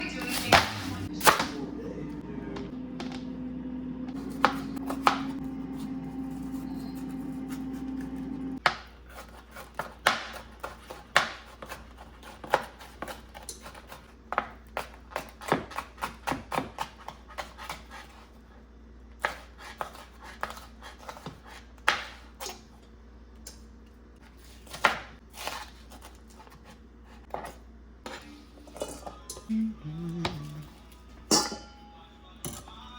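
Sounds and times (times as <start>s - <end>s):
low steady hum: 0.0s - 8.6s, 26.1s - 32.9s
knife on cutting board: 9.1s - 14.1s, 19.2s - 22.6s, 24.3s - 28.2s.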